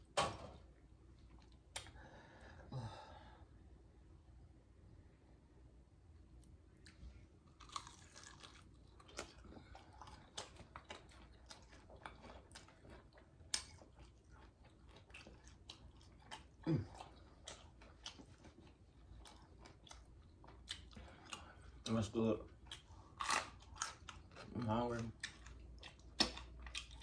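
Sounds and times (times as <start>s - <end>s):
crunchy chewing: 6.8s - 21.9s, 22.5s - 27.0s.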